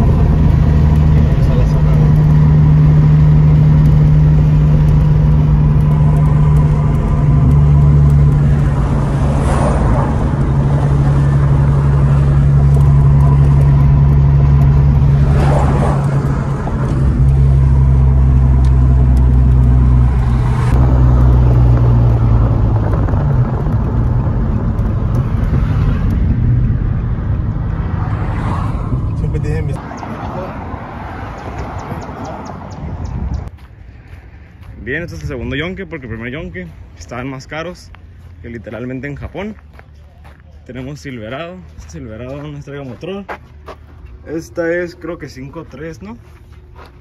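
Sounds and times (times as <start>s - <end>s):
car engine droning in cabin: 0.0s - 30.7s
road noise: 0.0s - 47.0s.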